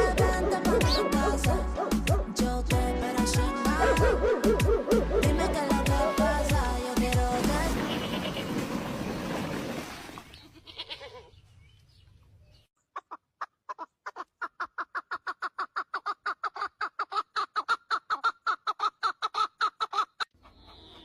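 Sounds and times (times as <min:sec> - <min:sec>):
chicken clucking: 0:12.9 - 0:21.0.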